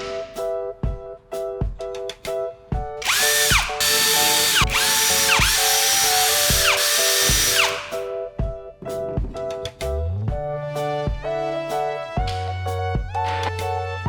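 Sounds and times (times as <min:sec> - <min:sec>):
background music: 0:00.0 - 0:14.0
power tool motor whining: 0:03.0 - 0:08.1.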